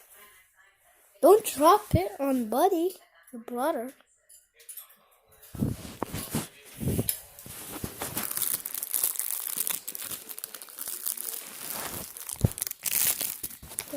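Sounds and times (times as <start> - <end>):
crinkling and crackling: 5.6 - 13.9.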